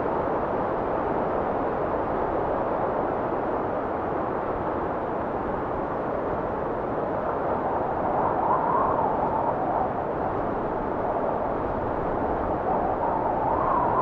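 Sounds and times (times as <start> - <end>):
wind blowing: 6.4 - 14.0.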